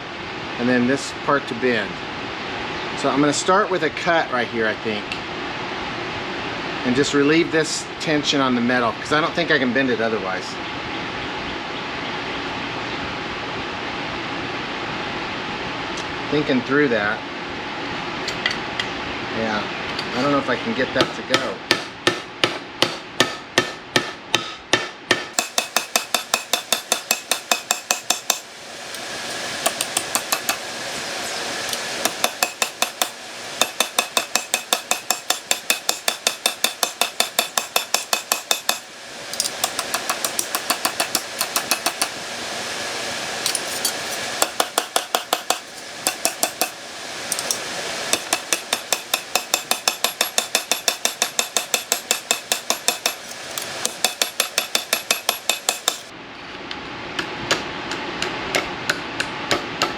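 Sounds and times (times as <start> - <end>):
hammer striking sheet steel: 21.7 - 42.2, 43.4 - 56.1
steady noise: 25.3 - 56.2.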